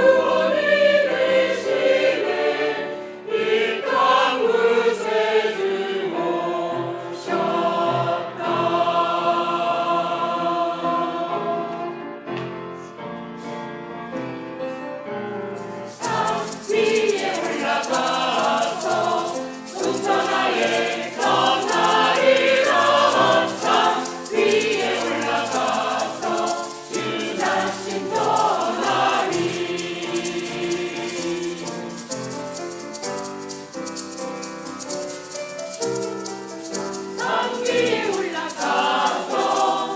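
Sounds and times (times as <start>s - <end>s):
church choir singing: 0.0s - 13.0s, 15.9s - 34.2s, 34.8s - 39.9s
musical accompaniment: 0.0s - 39.9s
shaker-like high percussion: 15.5s - 39.9s.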